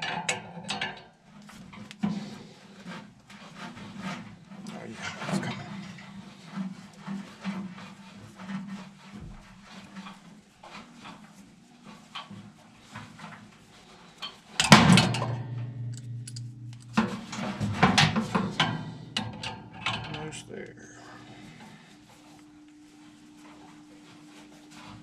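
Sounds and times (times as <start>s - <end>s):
hand tools clicking and knocking on metal: 0.0s - 2.2s, 14.2s - 20.7s.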